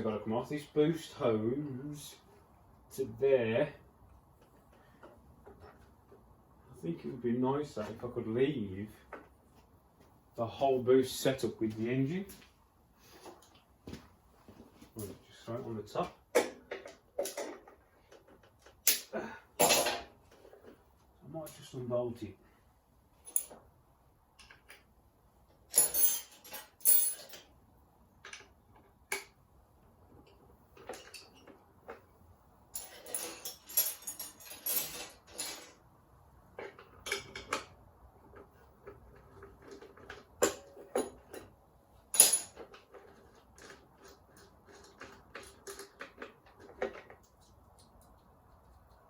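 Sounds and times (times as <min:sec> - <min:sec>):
metal tools clinking: 0:16.4 - 0:20.7, 0:23.2 - 0:23.6, 0:25.7 - 0:27.5, 0:30.2 - 0:32.0, 0:32.7 - 0:35.8, 0:38.8 - 0:48.2.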